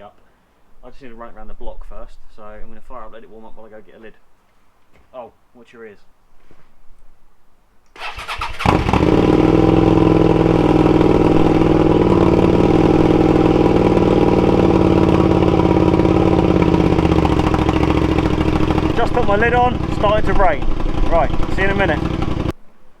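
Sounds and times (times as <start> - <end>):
electric starter cranking: 8.0 - 22.5
motorcycle engine idling: 8.0 - 22.5.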